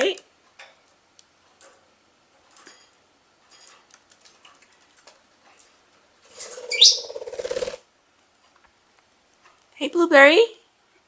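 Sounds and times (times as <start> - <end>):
budgies clicking and scratching: 3.7 - 7.8
wing flapping: 6.3 - 7.8.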